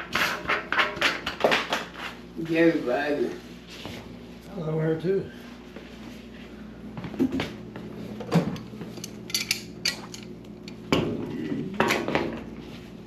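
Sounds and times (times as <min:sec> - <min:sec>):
steady low hum: 0:00.0 - 0:13.0
metal tools clinking: 0:09.0 - 0:10.8.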